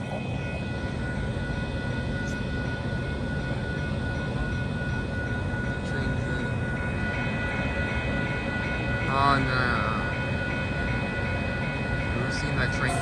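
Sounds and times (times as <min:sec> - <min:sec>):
diesel train rumbling: 0:00.0 - 0:13.0.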